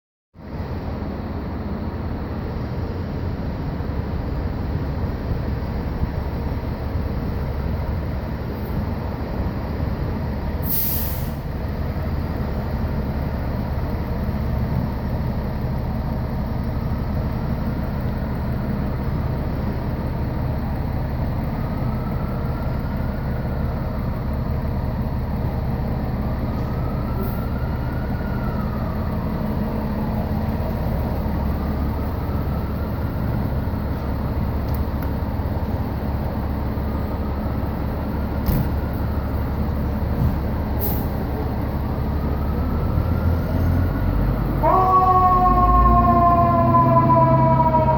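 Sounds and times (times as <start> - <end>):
diesel engine running: 0.4 - 47.9
air brake hiss: 10.6 - 11.5, 40.8 - 41.2.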